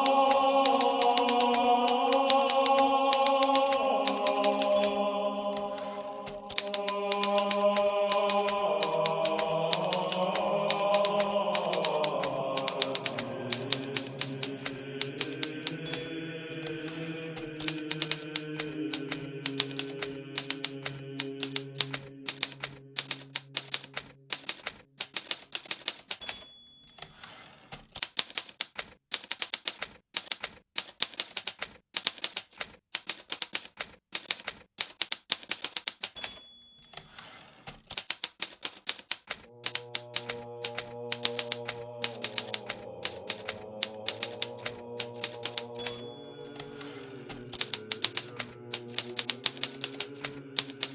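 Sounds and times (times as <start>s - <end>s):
typewriter bell ring: 0.0s - 12.0s, 12.6s - 14.5s, 15.2s - 17.0s, 22.3s - 28.5s, 35.6s - 38.8s, 41.2s - 44.4s, 45.1s - 48.2s, 48.9s - 50.9s
typewriter carriage return: 0.0s - 50.9s
typewriter typing: 0.0s - 50.9s.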